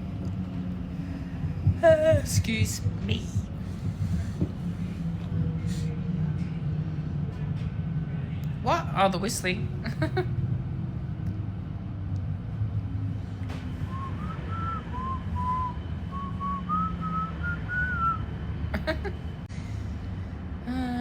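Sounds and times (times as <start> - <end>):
train carriage rumble: 0.0 - 21.0
person whistling a melody: 13.9 - 18.2.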